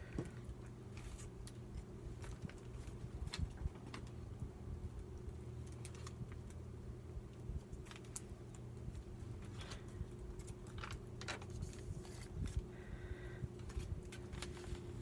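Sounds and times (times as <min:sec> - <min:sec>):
steady low hum: 0:00.0 - 0:15.0
paper clicks and rustles: 0:00.9 - 0:04.4, 0:05.2 - 0:06.6, 0:07.3 - 0:12.6, 0:13.6 - 0:15.0.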